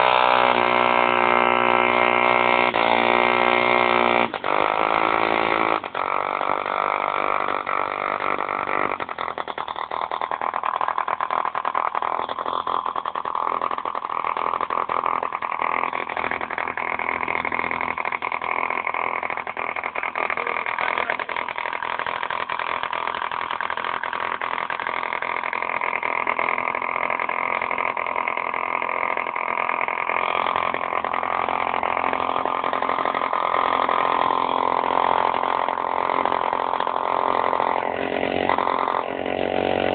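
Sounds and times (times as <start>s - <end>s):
model diesel engine running: 0.0s - 39.9s.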